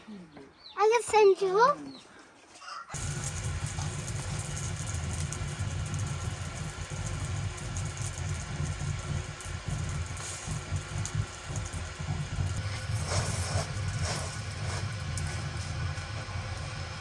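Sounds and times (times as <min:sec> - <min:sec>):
steady low rumble: 0:03.0 - 0:17.0
faint hiss: 0:12.4 - 0:15.8.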